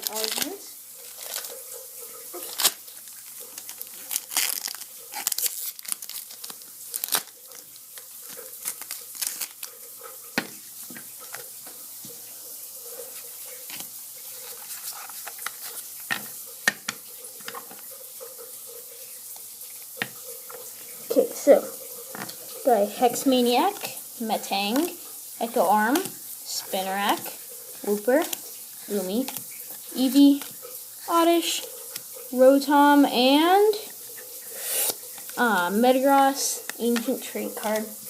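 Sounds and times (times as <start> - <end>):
foil wrapper tearing and crinkling: 0.0 - 10.6, 13.0 - 16.4
cards rustling and sliding: 13.0 - 17.8, 34.1 - 37.9.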